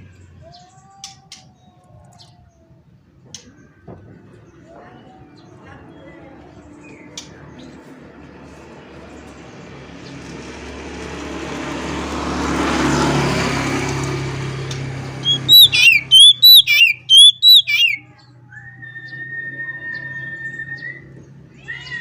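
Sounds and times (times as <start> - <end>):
passing vehicle: 6.2 - 18.0
steady held whistle: 15.2 - 18.0
bird singing whistled notes: 15.2 - 21.2.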